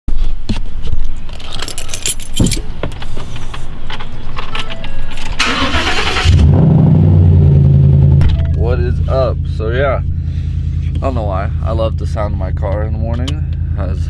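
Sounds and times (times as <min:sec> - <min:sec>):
keys jangling: 0:01.3 - 0:03.7
car starter cranking: 0:01.6 - 0:06.5
car engine idling: 0:02.0 - 0:14.0.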